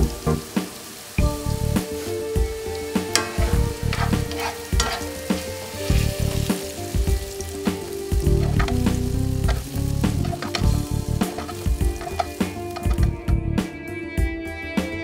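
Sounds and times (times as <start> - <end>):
mushrooms sizzling in a skillet: 0.0 - 13.4
spatula scraping a pan: 2.0 - 13.0.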